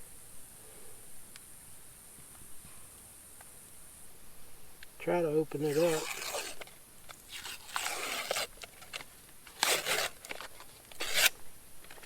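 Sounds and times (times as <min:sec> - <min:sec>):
package being torn open: 0:05.6 - 0:12.0.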